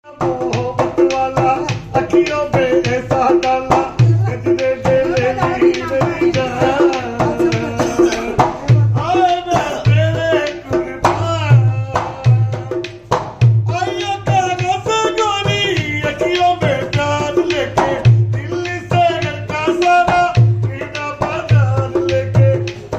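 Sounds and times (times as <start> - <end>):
person singing: 0.0 - 13.0
hand drum beating: 0.1 - 22.9.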